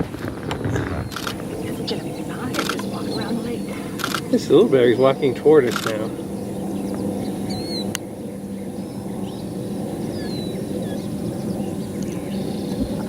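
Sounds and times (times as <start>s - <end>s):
faint bird chirps: 0.5s - 13.0s
boat motor idling: 0.8s - 10.4s.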